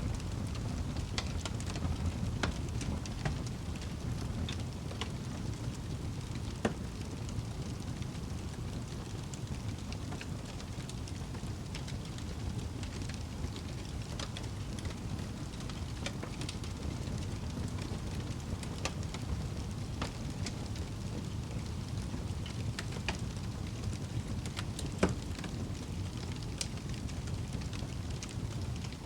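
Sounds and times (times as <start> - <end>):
fire crackles and pops: 0.0 - 29.0
low rumble of flames: 0.0 - 29.0.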